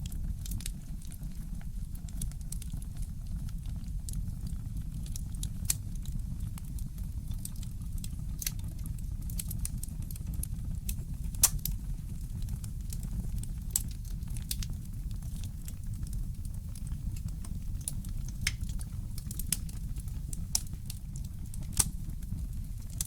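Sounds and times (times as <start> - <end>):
fireplace crackling: 9.3 - 23.0.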